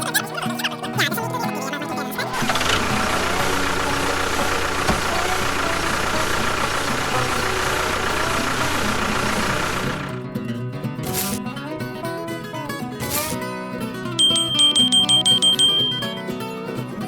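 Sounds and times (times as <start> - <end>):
engine idling: 2.3 - 10.2.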